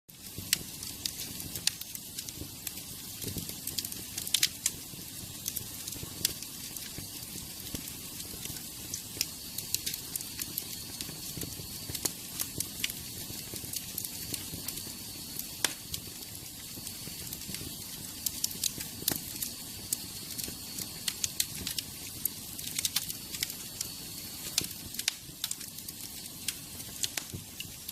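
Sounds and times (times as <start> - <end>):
wood fire crackling and popping: 0.1 - 27.9.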